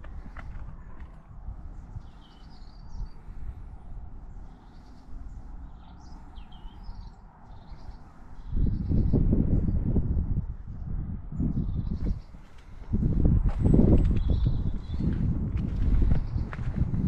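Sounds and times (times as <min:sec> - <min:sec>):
small birds chirping: 0:00.0 - 0:10.1, 0:10.8 - 0:17.0
steady low rumble: 0:00.0 - 0:17.0.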